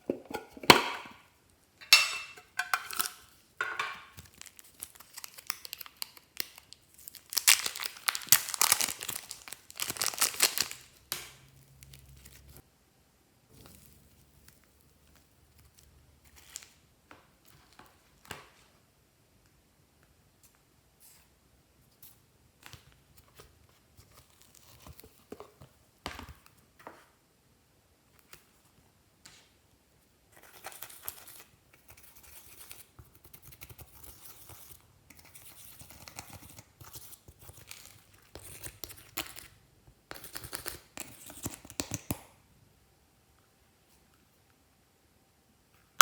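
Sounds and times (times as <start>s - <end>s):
slime crackling: 4.2s - 11.2s.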